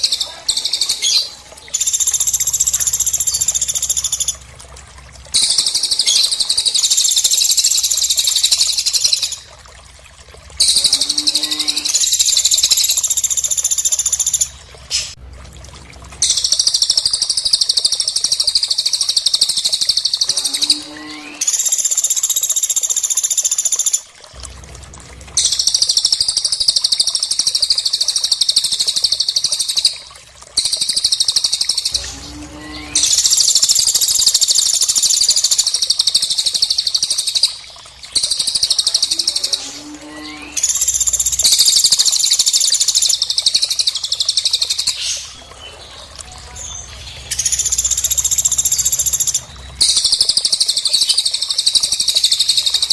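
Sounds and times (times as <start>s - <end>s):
high rapid bird twittering: 0.0s - 4.4s, 5.4s - 9.5s, 16.2s - 24.0s, 25.4s - 45.4s, 46.5s - 52.9s.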